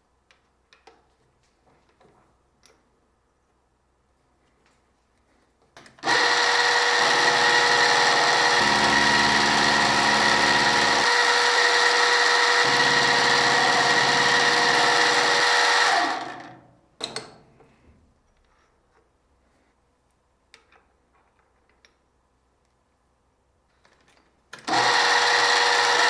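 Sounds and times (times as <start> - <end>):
electric machine tool whining: 6.0 - 16.6, 24.6 - 26.0.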